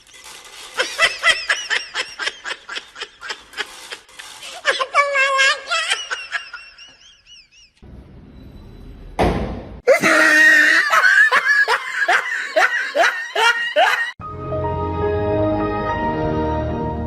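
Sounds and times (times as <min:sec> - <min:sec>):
person laughing hard: 0:00.8 - 0:07.8, 0:09.9 - 0:14.2
background music with held notes: 0:14.2 - 0:17.0.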